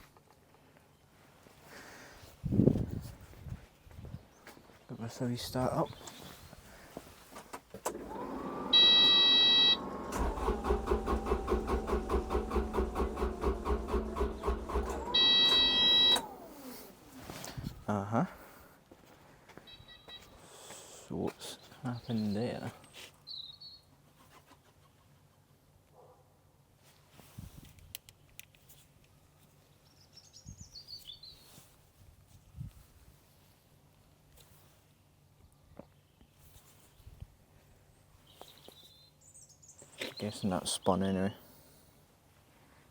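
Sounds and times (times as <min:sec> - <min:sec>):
diesel engine cranking: 0:07.8 - 0:17.1
warning buzzer beeping: 0:08.6 - 0:10.3, 0:15.0 - 0:16.3
bird chirps: 0:19.7 - 0:20.4, 0:23.2 - 0:23.9.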